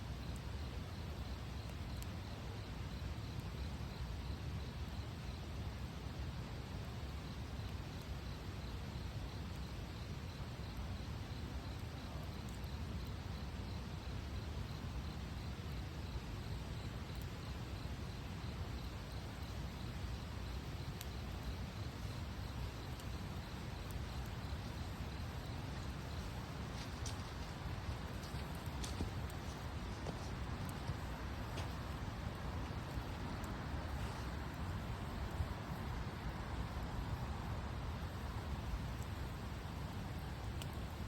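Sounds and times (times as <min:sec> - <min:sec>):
fire crackles: 0:00.0 - 0:41.0
wood fire rushing: 0:16.9 - 0:41.0.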